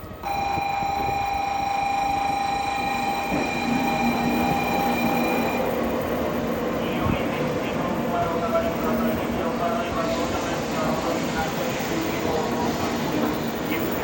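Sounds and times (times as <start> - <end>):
train rumble: 0.0 - 14.0
low hum: 0.2 - 5.8
high-pitched whine: 0.2 - 6.1.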